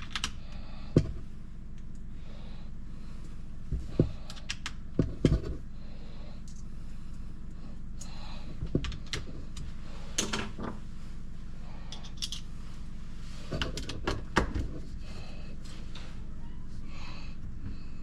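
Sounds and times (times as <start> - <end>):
steady low hum: 0.0 - 18.0
metal tools clinking: 11.9 - 12.5.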